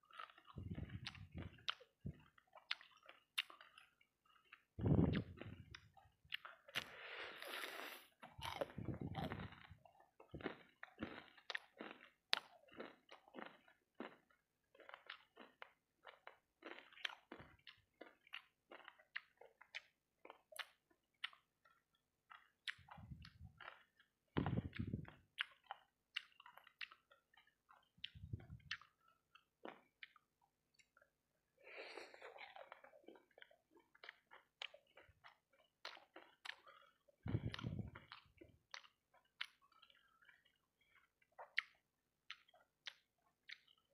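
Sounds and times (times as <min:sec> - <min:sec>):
chewing crunchy food: 0:00.0 - 0:43.9
wet mouth clicks: 0:00.1 - 0:09.7, 0:24.4 - 0:29.1, 0:34.0 - 0:40.4
dull low thumps: 0:00.5 - 0:02.2, 0:04.8 - 0:05.8, 0:08.4 - 0:09.7, 0:24.4 - 0:25.1, 0:37.3 - 0:38.1.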